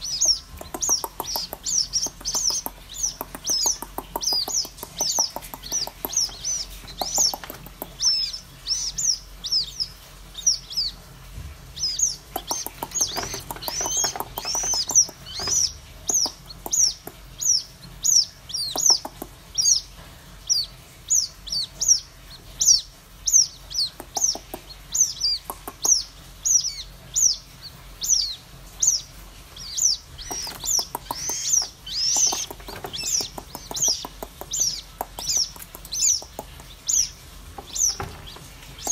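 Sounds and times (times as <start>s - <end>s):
bird chicks peeping: 0.0s - 38.9s
light taps or clicks: 0.6s - 8.1s.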